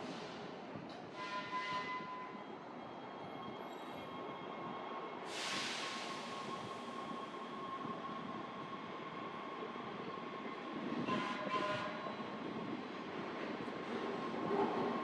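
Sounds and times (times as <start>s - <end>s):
train rumbling: 0.0s - 15.0s
burst of hiss: 5.3s - 6.5s.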